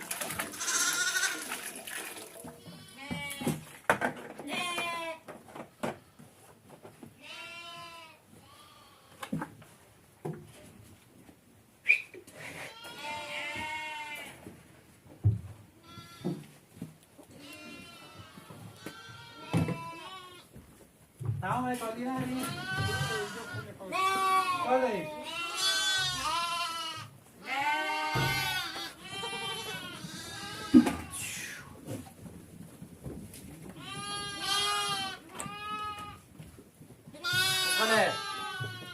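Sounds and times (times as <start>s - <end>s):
goat bleating: 0.5s - 1.6s, 2.6s - 3.6s, 4.4s - 5.2s, 7.2s - 9.2s, 12.4s - 14.4s, 15.8s - 16.4s, 17.3s - 20.5s, 22.3s - 31.7s, 33.8s - 36.2s, 37.1s - 38.9s
knocks and rustles: 3.1s - 7.2s, 14.4s - 17.3s, 31.8s - 34.2s.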